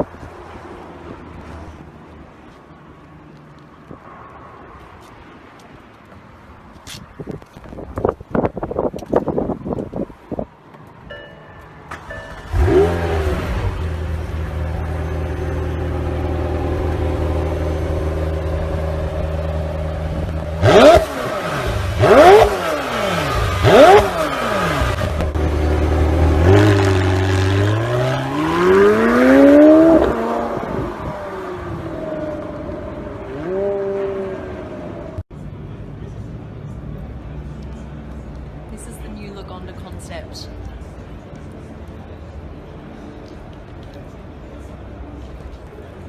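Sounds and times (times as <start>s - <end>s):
car engine starting: 11.8s - 35.2s
car engine idling: 11.9s - 27.5s
engine accelerating: 11.9s - 35.2s
engine revving: 12.0s - 35.2s.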